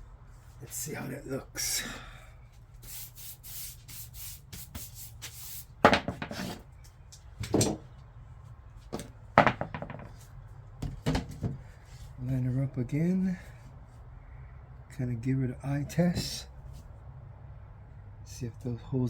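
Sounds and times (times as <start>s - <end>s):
wooden knocks: 5.8s - 6.6s, 8.9s - 10.2s.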